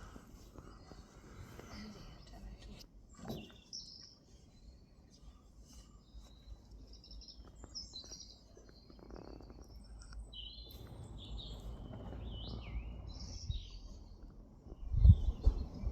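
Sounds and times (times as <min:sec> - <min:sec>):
songbirds singing and chirping: 0:00.0 - 0:15.9
low rumble: 0:10.6 - 0:15.9.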